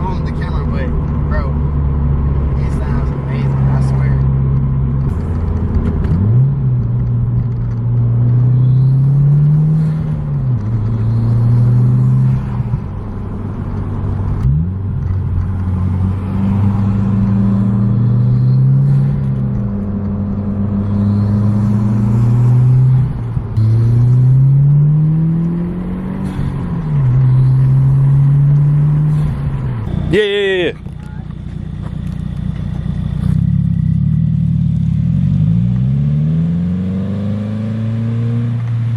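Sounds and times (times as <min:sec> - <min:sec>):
turbocharged car engine accelerating: 0:00.0 - 0:38.9
loud engine intake: 0:20.7 - 0:22.8, 0:23.6 - 0:24.4.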